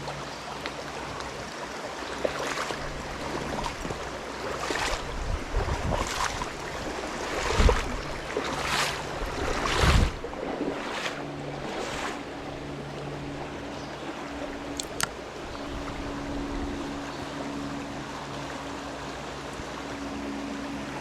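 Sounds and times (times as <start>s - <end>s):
stream water rushing: 0.0s - 21.0s
sharp click: 14.8s - 15.1s.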